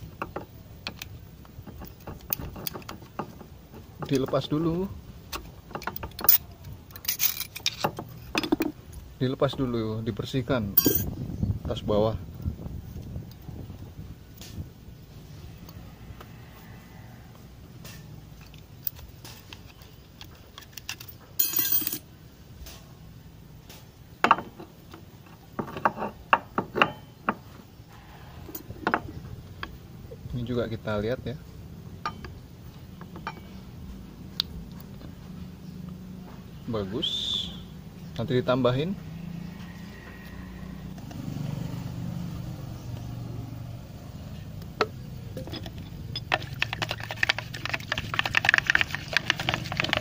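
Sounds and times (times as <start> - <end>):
metal parts clicking and clinking: 0.1 - 4.6, 5.3 - 8.7, 10.8 - 11.1, 18.4 - 22.1, 33.0 - 33.6, 45.3 - 50.0
rapid scratchy scraping: 46.2 - 50.0.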